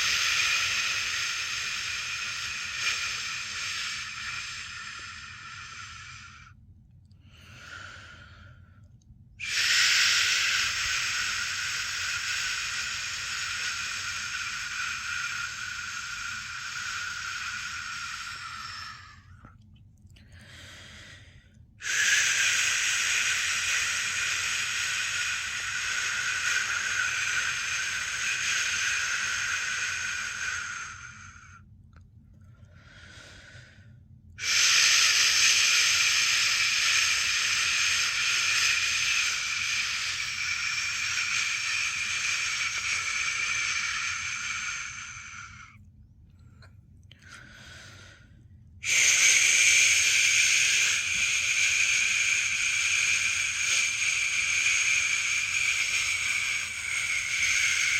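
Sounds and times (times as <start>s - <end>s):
faint breaths: 0.0s - 57.9s
person shushing: 9.4s - 19.3s, 34.4s - 45.7s, 48.8s - 57.9s.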